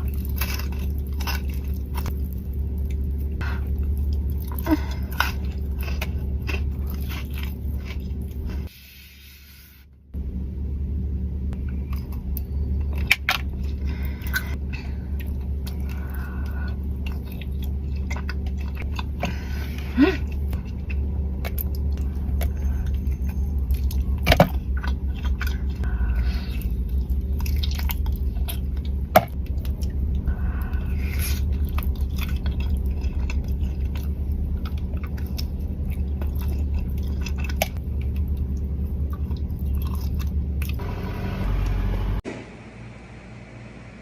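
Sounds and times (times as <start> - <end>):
person chewing chocolate: 0.0 - 8.7, 11.6 - 40.8
steady low rumble: 0.0 - 9.2, 9.8 - 44.0
steady hum: 0.0 - 44.0.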